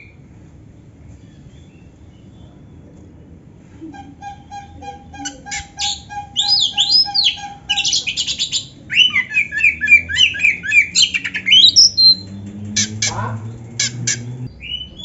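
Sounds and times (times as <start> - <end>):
bird singing: 4.2 - 15.0.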